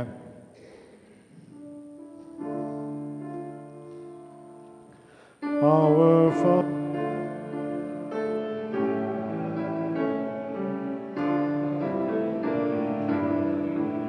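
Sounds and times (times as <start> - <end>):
piano playing slow chords: 0.0 - 14.0.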